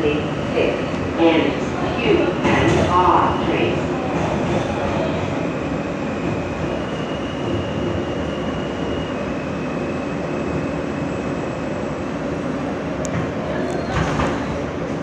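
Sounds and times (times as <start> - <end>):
subway car rumble and rail noise: 0.0 - 15.0.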